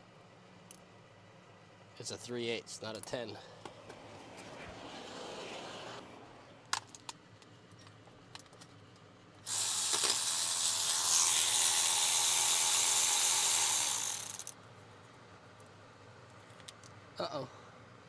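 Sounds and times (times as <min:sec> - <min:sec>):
power ratchet spinning: 0:09.4 - 0:14.6
tool clicks: 0:09.5 - 0:14.5.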